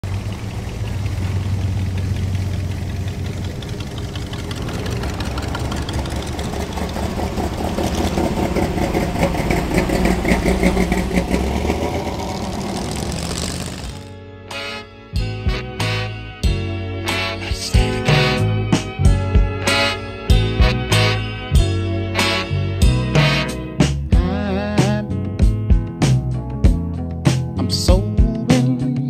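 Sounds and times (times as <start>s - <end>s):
car engines driving slowly past: 0.0s - 14.2s.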